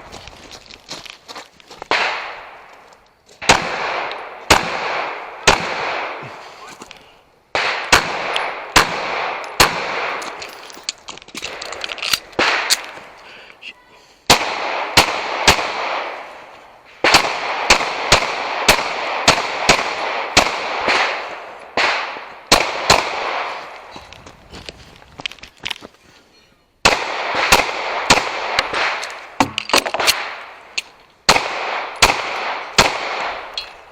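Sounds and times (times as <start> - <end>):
echoing pistol shots: 1.9 - 2.6, 3.4 - 6.4, 7.5 - 10.4, 12.2 - 13.0, 14.3 - 16.4, 17.0 - 23.8, 26.8 - 33.9.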